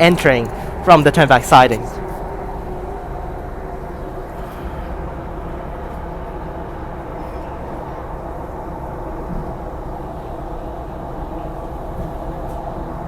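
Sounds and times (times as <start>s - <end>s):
faint motor hum: 0.0s - 12.0s
train wheels rumbling on rail: 0.0s - 13.0s.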